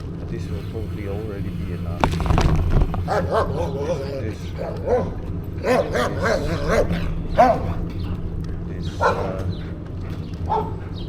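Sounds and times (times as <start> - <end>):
low rumble of riding noise: 4.3 - 11.0
dogs barking: 8.8 - 11.0.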